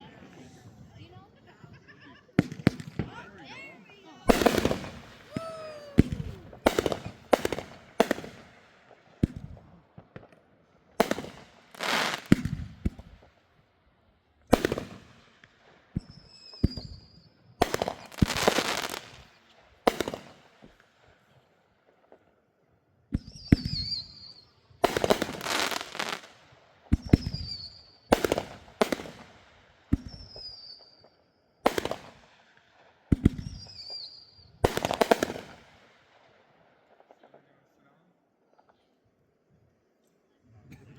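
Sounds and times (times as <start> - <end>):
fireworks crackling: 0.0 - 13.5, 14.5 - 21.2, 23.2 - 36.2
fireworks banging: 0.2 - 10.4, 11.0 - 13.4, 14.5 - 20.9, 23.1 - 31.1, 33.1 - 35.7
firework whistles: 4.2 - 8.2, 15.9 - 20.1, 23.2 - 26.3, 27.0 - 29.1, 30.0 - 32.0, 33.1 - 35.5.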